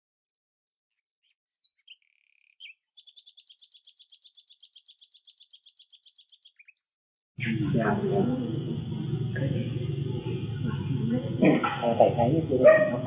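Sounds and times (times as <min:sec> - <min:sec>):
small bird chirping and trilling: 0:01.2 - 0:06.9.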